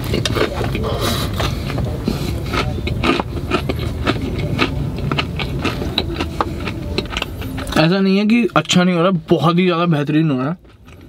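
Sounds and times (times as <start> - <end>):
crunchy chewing: 0.0 - 8.0, 10.2 - 11.0
steady low rumble: 0.0 - 11.0.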